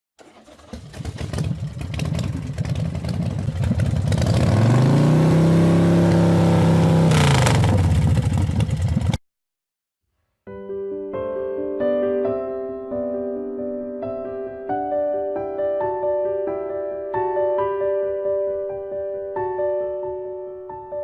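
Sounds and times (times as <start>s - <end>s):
motorcycle engine revving: 0.2s - 9.2s.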